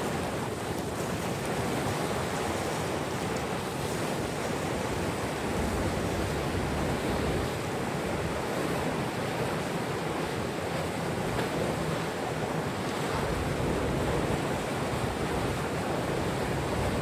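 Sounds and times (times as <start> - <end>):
water rushing: 11.2 - 17.0.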